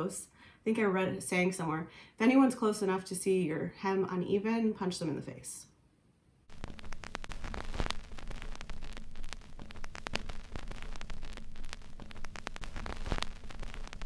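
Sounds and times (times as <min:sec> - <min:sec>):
steady crackling: 0:06.5 - 0:14.0.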